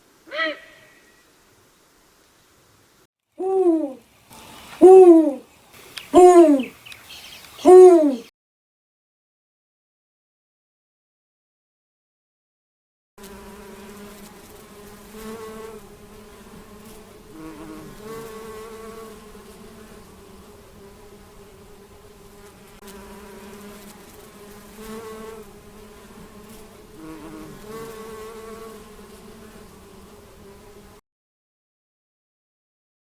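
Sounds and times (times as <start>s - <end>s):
insect buzzing: 3.4s - 8.3s, 13.2s - 31.0s.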